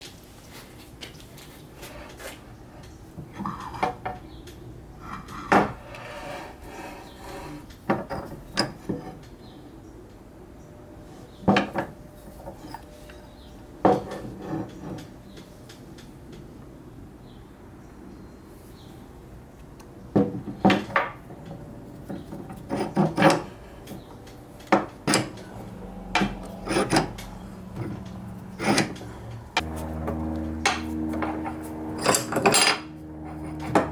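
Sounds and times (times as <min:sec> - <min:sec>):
metal clanks and knocks: 0:20.2 - 0:33.9
metal scraping: 0:20.8 - 0:33.9.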